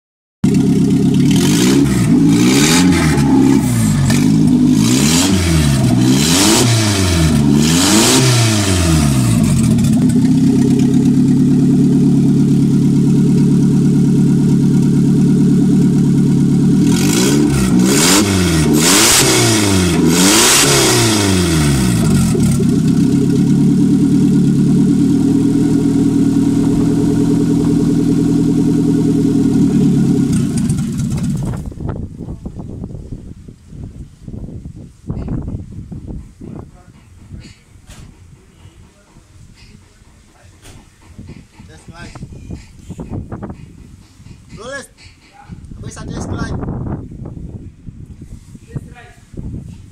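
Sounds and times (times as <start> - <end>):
car engine idling: 0.4 - 32.2
engine throttle blips: 0.4 - 32.2.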